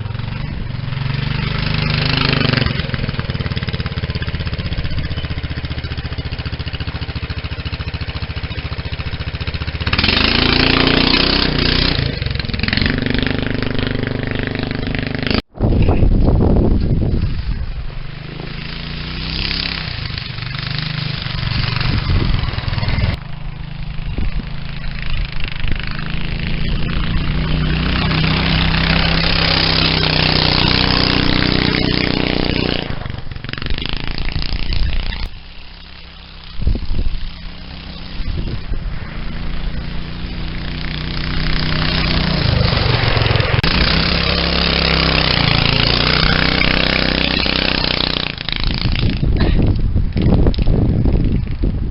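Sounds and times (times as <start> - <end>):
go-kart engine running: 0.0 - 15.4, 16.8 - 51.8.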